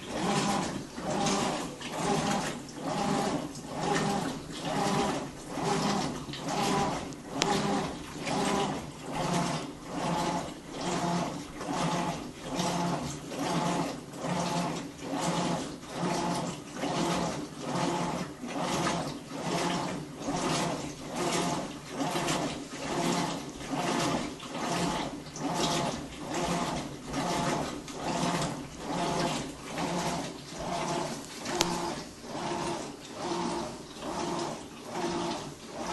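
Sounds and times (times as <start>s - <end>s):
washer motor whining: 0.0s - 35.9s
water swishing: 20.0s - 35.9s.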